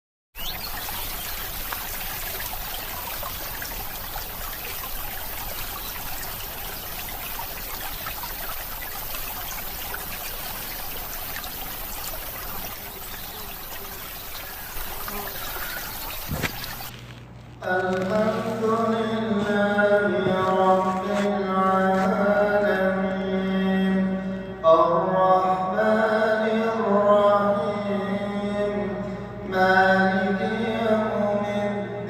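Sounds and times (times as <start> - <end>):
water trickling: 0.4 - 16.9.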